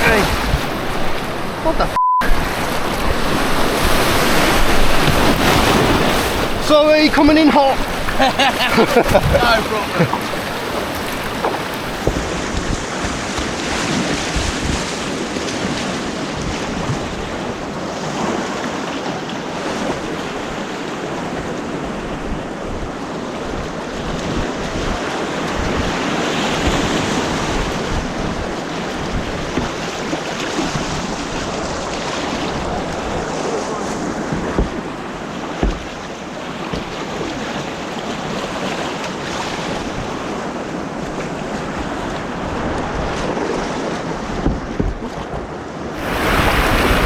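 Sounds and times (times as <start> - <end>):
wind buffeting microphone: 0.0 - 18.6, 19.6 - 47.0
rushing white water roar: 0.0 - 47.0.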